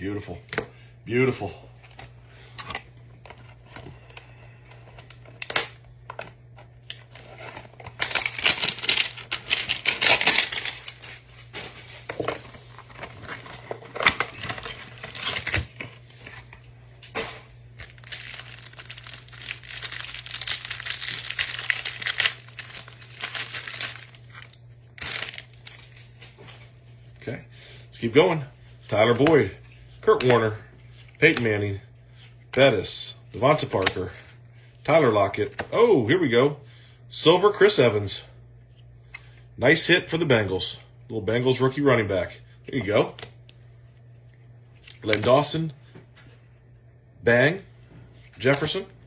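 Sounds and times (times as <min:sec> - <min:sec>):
plastic wrapper crinkling and tearing: 0:06.9 - 0:26.4.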